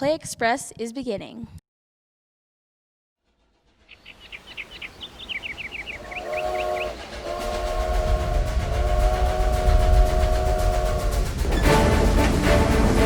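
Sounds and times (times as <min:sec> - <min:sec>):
steam train chugging: 0:03.4 - 0:13.0
steam whistle blowing: 0:05.7 - 0:13.0.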